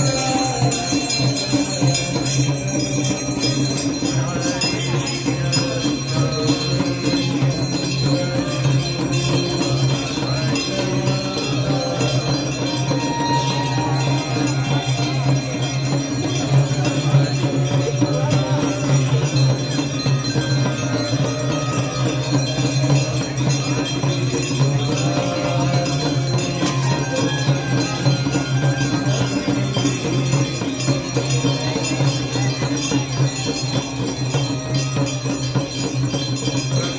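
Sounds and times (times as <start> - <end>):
devotional music: 0.0 - 36.9
small bells ringing: 0.0 - 36.9.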